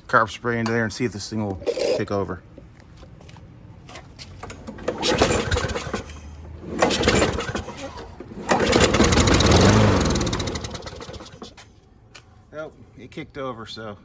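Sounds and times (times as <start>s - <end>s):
lawn mower engine pull-started: 4.4s - 11.6s.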